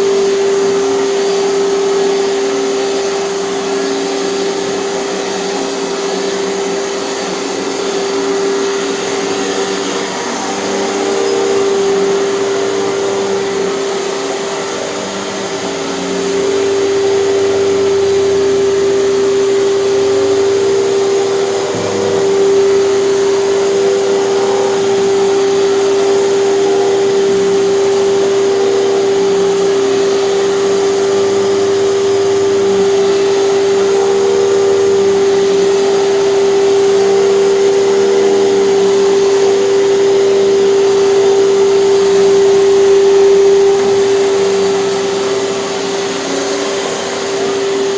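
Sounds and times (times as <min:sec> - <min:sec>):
vacuum cleaner motor whine: 0:00.0 - 0:47.9.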